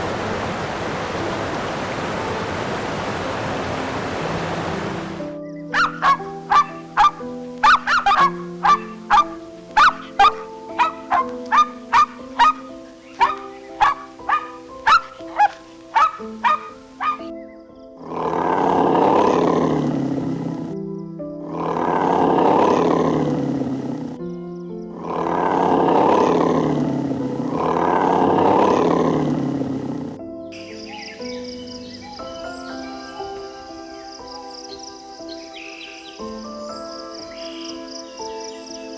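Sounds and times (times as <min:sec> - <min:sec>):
soft background music: 0:00.0 - 0:38.9
big cat roaring: 0:18.0 - 0:20.6, 0:21.5 - 0:24.0, 0:25.0 - 0:30.0.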